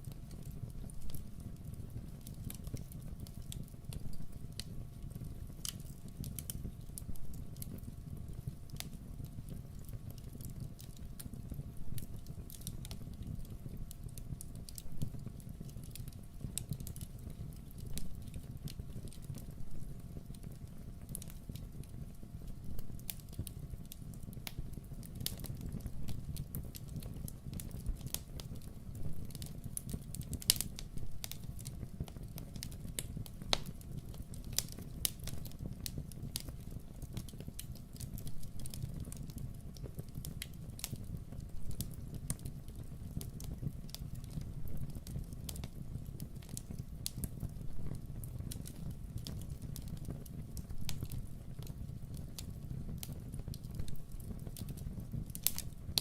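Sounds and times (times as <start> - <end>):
fireplace fire crackling: 0.0 - 56.0
sharp pops and snaps: 52.4 - 56.0.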